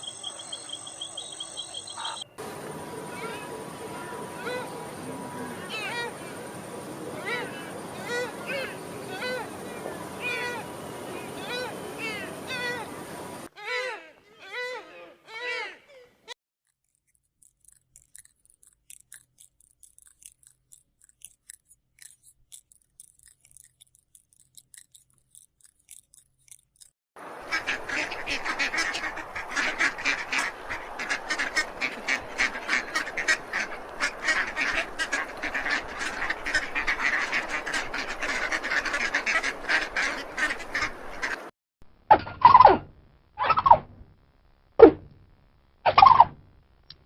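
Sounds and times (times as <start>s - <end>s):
flock of birds calling: 0.0s - 13.5s, 27.3s - 41.5s.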